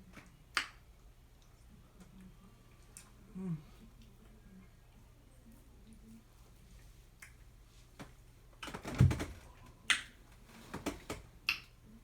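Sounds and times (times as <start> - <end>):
mouth clicks and lip smacks: 11.4 - 11.8.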